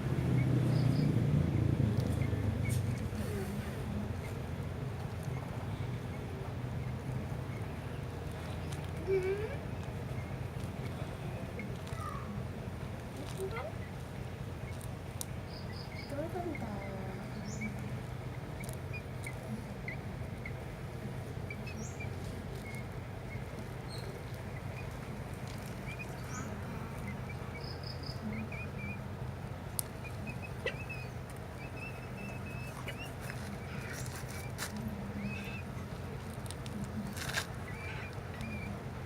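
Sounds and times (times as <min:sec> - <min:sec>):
steady low hum: 0:00.0 - 0:39.0
faint bird chirps: 0:25.8 - 0:29.0.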